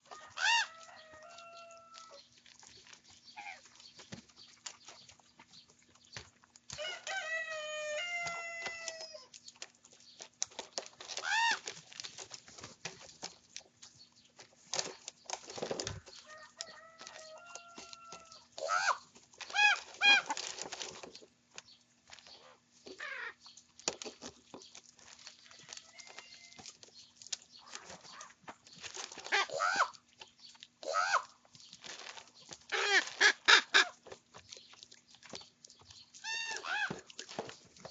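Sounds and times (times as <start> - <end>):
young ravens calling: 16.3 - 20.4, 22.9 - 23.4, 29.3 - 30.0, 30.8 - 31.4, 36.2 - 37.1.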